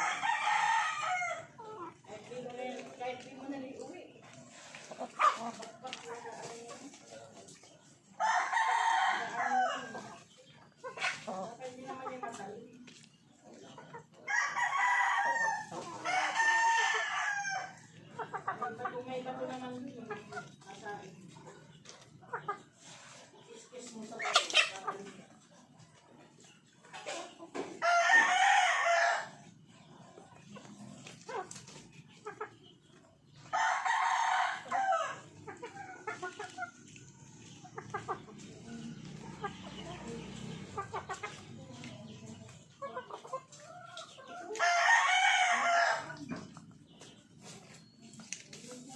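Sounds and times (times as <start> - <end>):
rooster crowing: 0.0 - 1.5, 27.8 - 29.3, 44.6 - 46.1
chickens clucking: 0.0 - 48.9.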